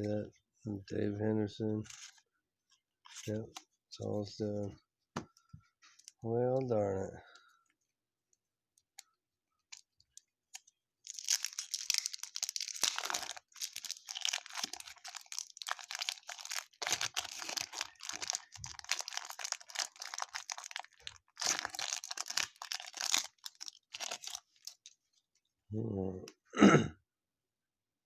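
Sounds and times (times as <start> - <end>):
wrapper tearing and crinkling: 11.0 - 24.9.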